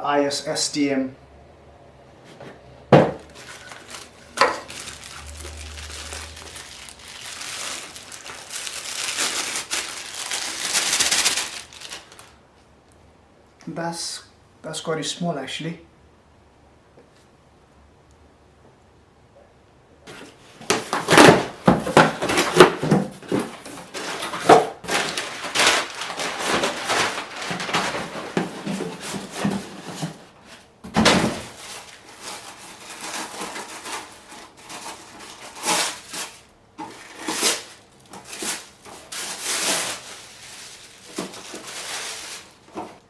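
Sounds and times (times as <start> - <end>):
rustling of packaging: 2.3 - 12.7, 20.1 - 43.0.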